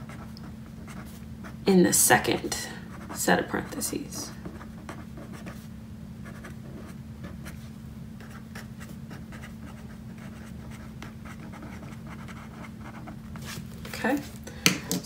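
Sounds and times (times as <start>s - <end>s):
pen scratching on paper: 0.0s - 1.2s, 4.5s - 5.6s, 6.2s - 7.6s, 8.2s - 13.6s
steady low hum: 0.0s - 15.0s.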